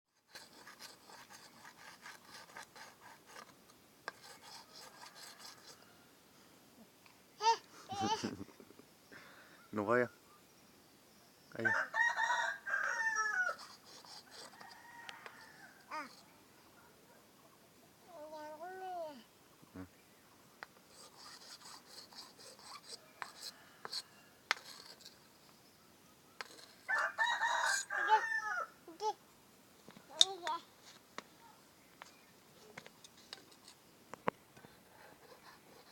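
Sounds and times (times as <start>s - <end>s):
knife scraping on sharpener: 0.2s - 5.8s, 13.5s - 16.3s, 20.9s - 25.2s, 26.4s - 27.0s
rooster crowing: 11.6s - 15.9s, 26.9s - 28.8s
knife blade scraping: 20.9s - 25.2s.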